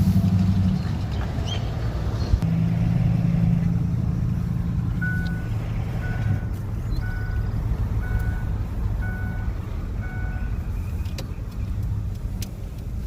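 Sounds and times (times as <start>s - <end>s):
road noise: 0.0s - 13.0s
vehicle engine running: 0.0s - 13.0s
reversing beeper: 5.0s - 10.6s.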